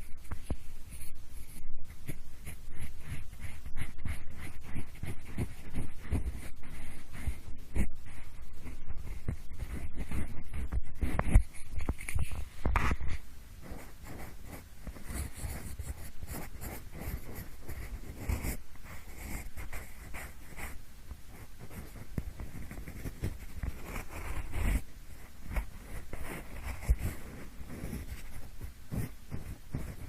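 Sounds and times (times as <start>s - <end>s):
pencil scratching: 0.0s - 30.0s.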